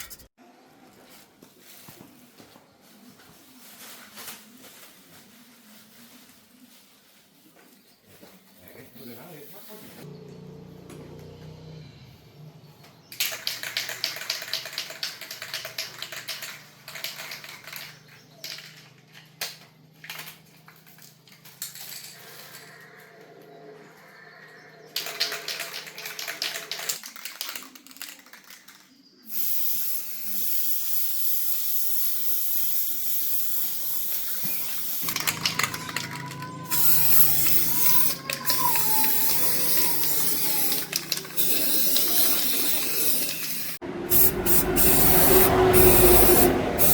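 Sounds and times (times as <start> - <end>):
spray hiss: 29.3 - 35.1, 36.8 - 46.9.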